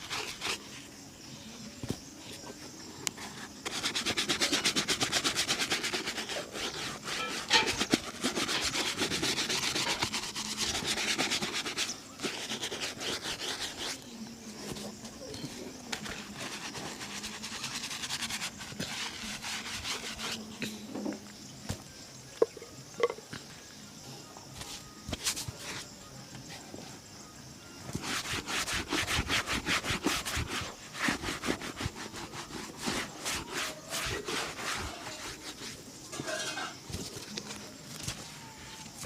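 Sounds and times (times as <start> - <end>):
shoe being buffed: 0.0 - 0.8, 3.2 - 14.0, 15.9 - 20.5, 27.9 - 35.8.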